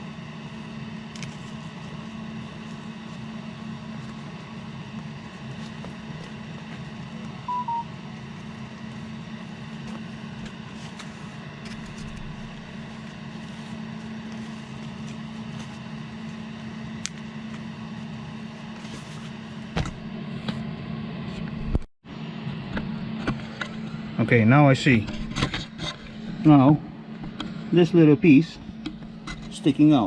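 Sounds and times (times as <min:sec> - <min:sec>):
two-note electronic beep: 0:07.5 - 0:07.9.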